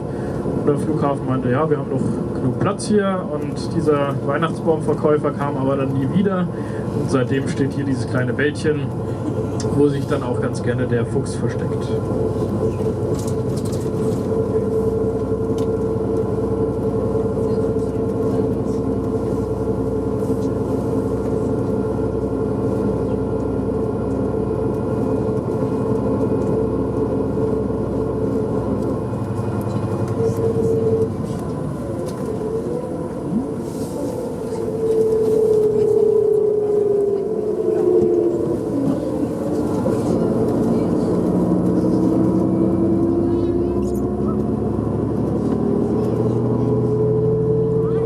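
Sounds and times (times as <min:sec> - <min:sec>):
vehicle engine and road drone: 0:00.0 - 0:48.0
steady hum: 0:11.5 - 0:45.2.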